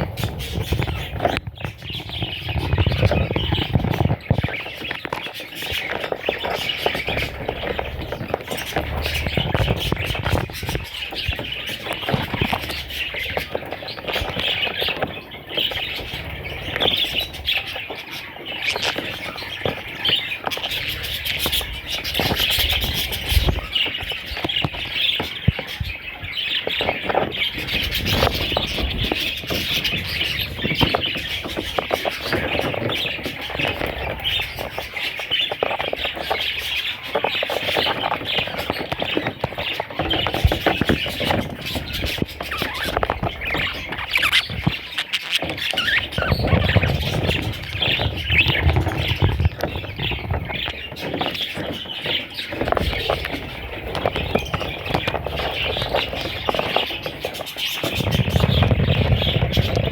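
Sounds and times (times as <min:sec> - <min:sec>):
budgerigars chirping and squawking: 0:00.0 - 0:59.9.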